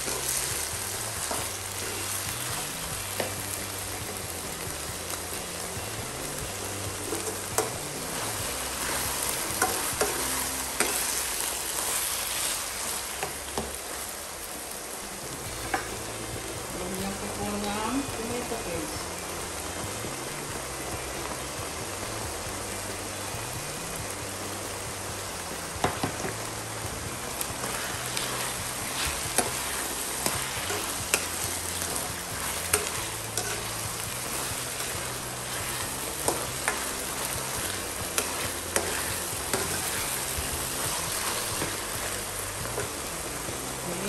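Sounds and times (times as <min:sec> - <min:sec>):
food sizzling in a wok: 0:00.0 - 0:44.0
metal spoon scraping pan: 0:27.6 - 0:41.8.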